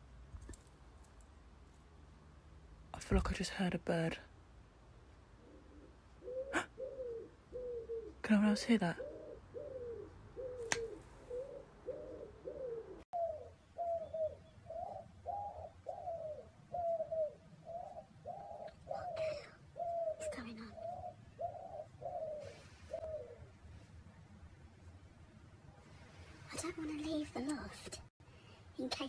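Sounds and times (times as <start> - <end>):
pigeon-like cooing: 5.4 - 8.2, 8.9 - 23.6.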